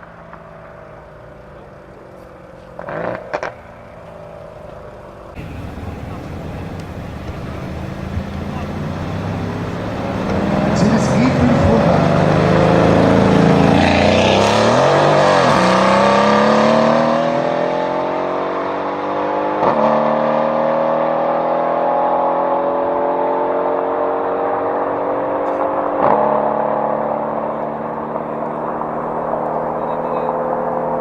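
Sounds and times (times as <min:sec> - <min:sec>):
exhaust cracks: 0:05.4 - 0:15.8
car engine accelerating: 0:05.4 - 0:31.0.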